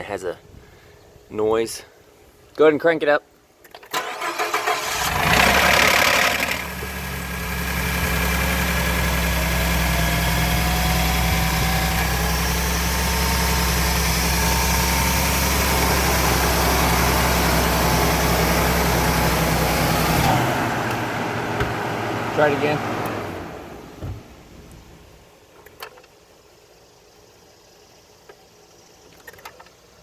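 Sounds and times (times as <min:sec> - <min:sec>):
truck engine cold start and idling: 0:03.9 - 0:24.5
faint engine whine: 0:04.0 - 0:25.2.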